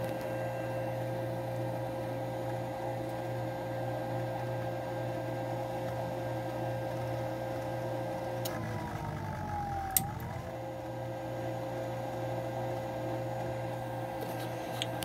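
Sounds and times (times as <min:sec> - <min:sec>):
furnace draft motor whine: 0:00.0 - 0:15.0
low hum: 0:08.4 - 0:11.8.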